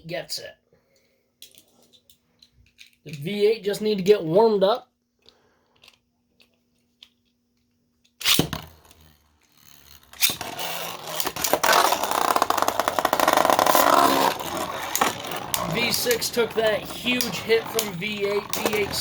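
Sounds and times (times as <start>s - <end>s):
spinning tops clattering: 8.2s - 19.0s
spinning tops launch rasp: 8.2s - 19.0s.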